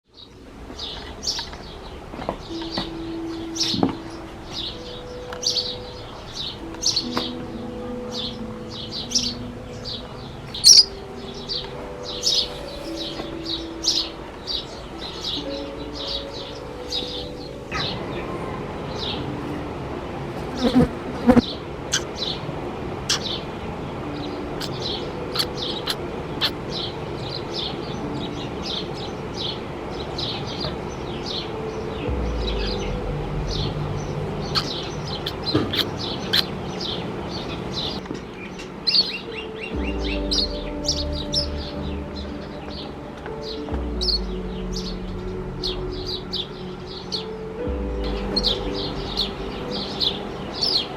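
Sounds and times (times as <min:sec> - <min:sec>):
sparrow chirping: 0:00.2 - 0:19.2, 0:24.2 - 0:50.9
steady low hum: 0:31.9 - 0:37.3.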